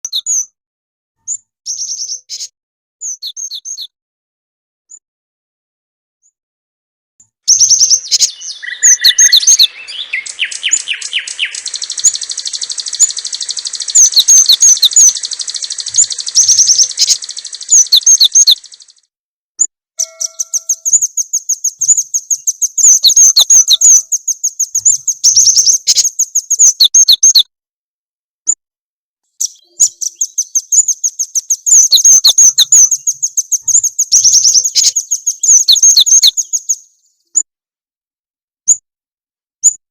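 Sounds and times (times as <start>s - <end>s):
recorded songbird trills: 0.0s - 0.5s, 1.3s - 3.9s, 7.3s - 19.1s, 20.0s - 27.5s, 29.3s - 37.5s.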